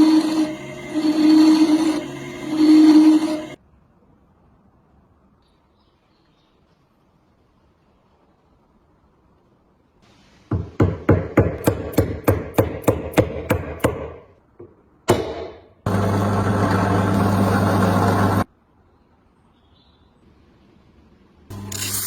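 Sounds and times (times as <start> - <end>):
electric power tool running: 0.0 - 3.6, 15.9 - 18.5, 21.5 - 22.0.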